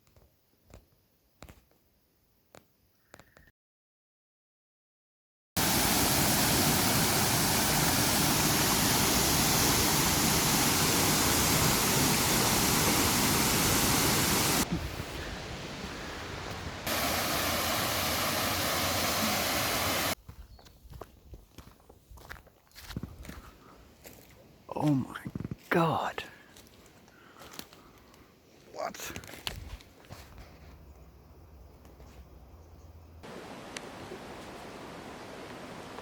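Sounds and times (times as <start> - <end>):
waterfall rushing: 5.6 - 20.2, 33.2 - 36.0.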